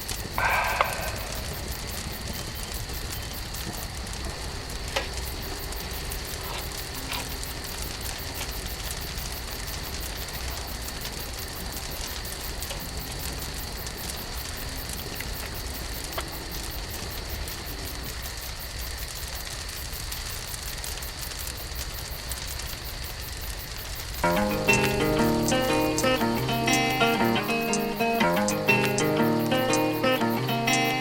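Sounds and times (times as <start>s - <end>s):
campfire crackling: 0.0s - 31.0s
fire pops: 0.0s - 31.0s.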